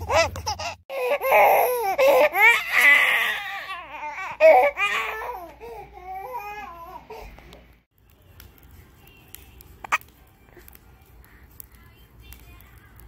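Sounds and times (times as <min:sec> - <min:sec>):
baby squealing and babbling: 0:00.0 - 0:05.4.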